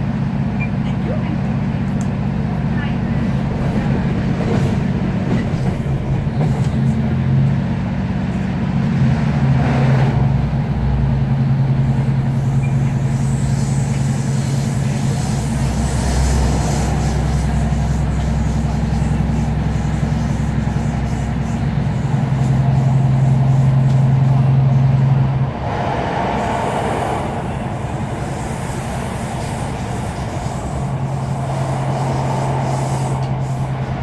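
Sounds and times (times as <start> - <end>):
diesel engine droning: 0.0 - 34.0
train wheels on rails: 0.0 - 34.0
deep rumble: 24.7 - 32.4.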